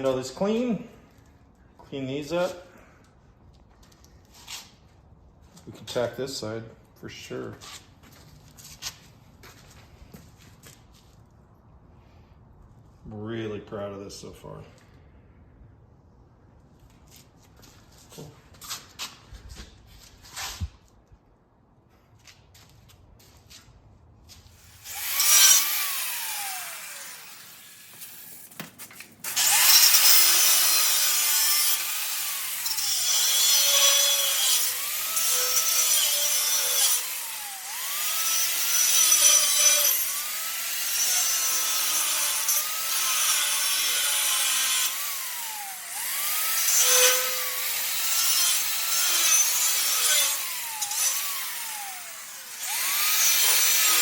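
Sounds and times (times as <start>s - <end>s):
angle grinder cutting metal: 24.6s - 54.0s.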